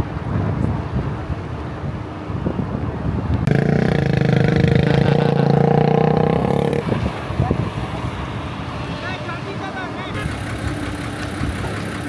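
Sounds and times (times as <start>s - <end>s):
traffic noise: 0.0s - 12.0s
wind noise: 0.0s - 12.0s
vehicle horn: 10.1s - 11.0s.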